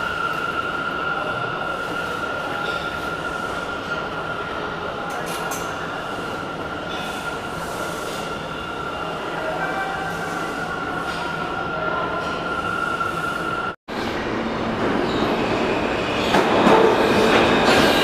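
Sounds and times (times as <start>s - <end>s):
subway train rumble: 0.0s - 18.0s.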